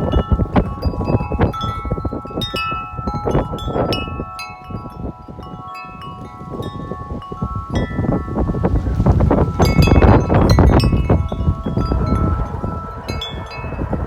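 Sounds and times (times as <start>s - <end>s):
wind chime ringing: 0.0s - 14.0s
wind rumbling on microphone: 0.0s - 14.0s.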